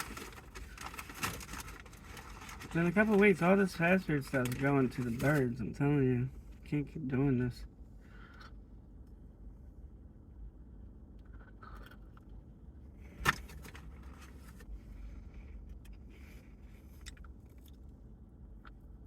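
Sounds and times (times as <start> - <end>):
person eating burger: 11.0 - 12.7, 15.2 - 18.0.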